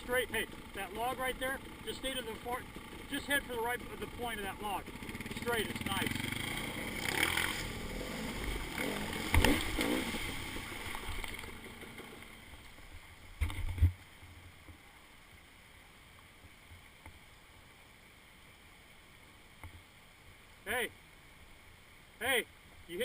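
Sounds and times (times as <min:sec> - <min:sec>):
dirt bike engine: 0:00.0 - 0:14.0
faint water hiss: 0:00.0 - 0:23.0
water splashing: 0:05.7 - 0:14.2
bike knocking on rock: 0:09.2 - 0:10.0.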